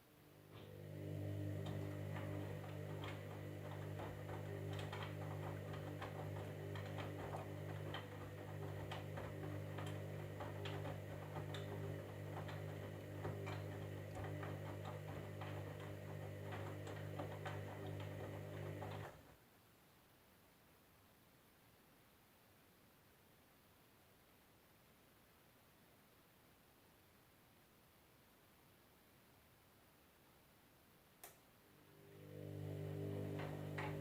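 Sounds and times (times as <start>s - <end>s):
washing machine motor hum: 0.3s - 19.4s, 31.6s - 34.0s.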